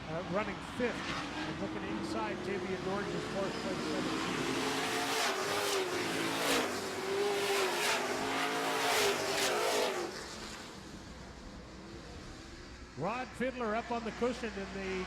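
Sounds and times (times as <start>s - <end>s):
racing truck engines passing: 0.0s - 11.4s.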